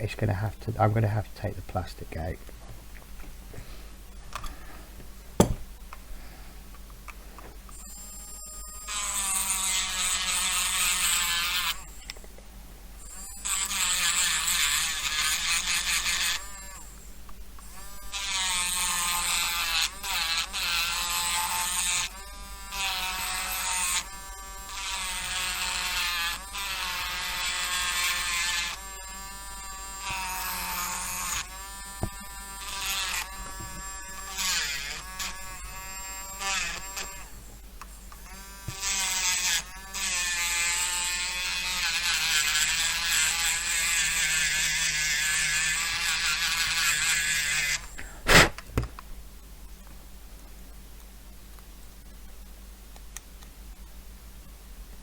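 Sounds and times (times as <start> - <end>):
electric mini drill drilling plastic: 7.7 - 12.0, 13.0 - 17.0, 17.6 - 37.3, 38.2 - 48.6.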